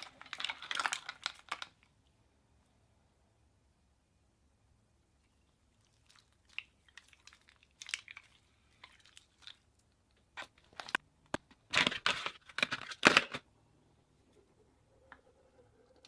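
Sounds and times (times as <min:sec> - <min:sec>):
slime squeezed crackling: 0:05.8 - 0:11.0.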